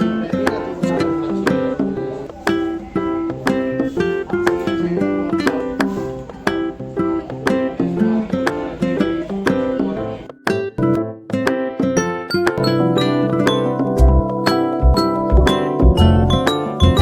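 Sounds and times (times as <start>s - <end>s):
plucked-string tune with beat: 0.0s - 17.0s.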